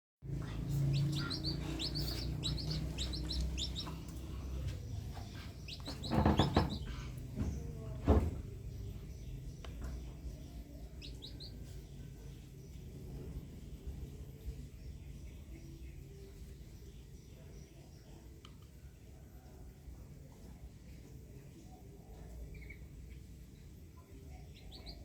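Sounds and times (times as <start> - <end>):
steady low rumble: 0.2 - 6.1
small birds chirping: 0.2 - 25.0
loud thumps: 5.8 - 8.5.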